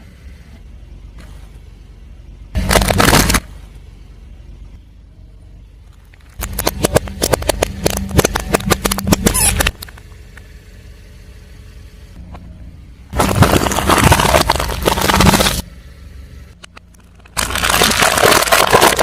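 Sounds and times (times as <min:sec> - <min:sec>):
car engine rumble: 0:00.0 - 0:19.0
tyre crushing brittle objects: 0:02.6 - 0:03.5, 0:13.1 - 0:15.6, 0:17.0 - 0:19.0.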